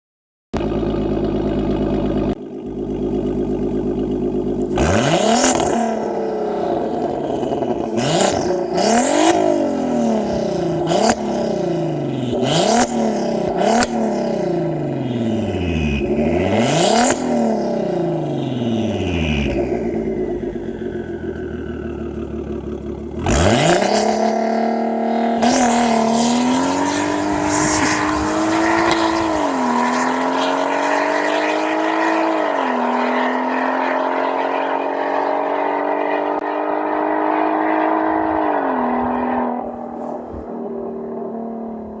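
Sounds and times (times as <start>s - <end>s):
car engine revving and accelerating: 1.2s - 42.0s
gear upshifts: 25.4s - 31.6s.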